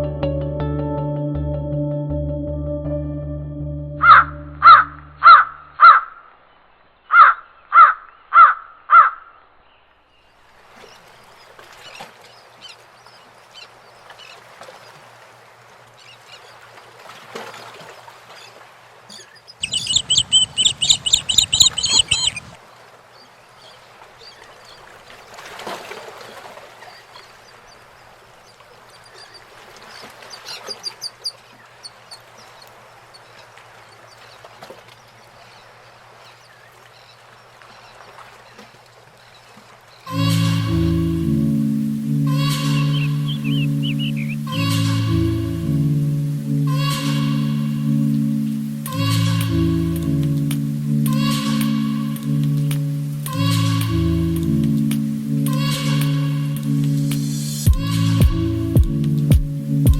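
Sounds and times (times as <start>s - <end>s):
crow cawing: 4.0s - 6.2s, 7.1s - 9.3s
faint birdsong: 4.0s - 15.0s, 18.0s - 25.0s, 26.7s - 40.1s, 42.0s - 44.9s
rapid high-pitched bird calls: 19.2s - 22.6s, 29.0s - 33.4s, 42.4s - 44.8s.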